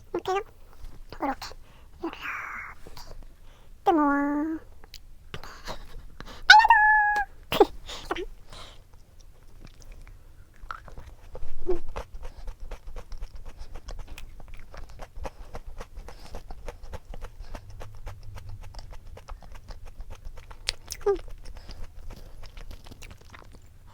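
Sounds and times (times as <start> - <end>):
falling cry-like call: 6.5 - 7.3
chewing crunchy snack: 8.1 - 23.9.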